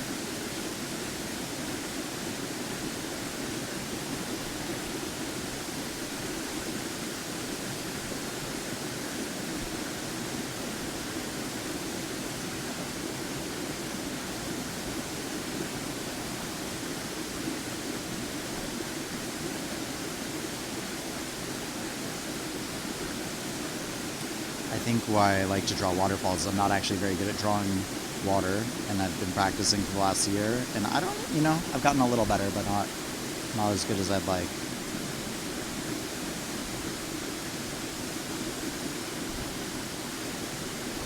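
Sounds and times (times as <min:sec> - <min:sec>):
waterfall rushing: 0:22.7 - 0:41.0.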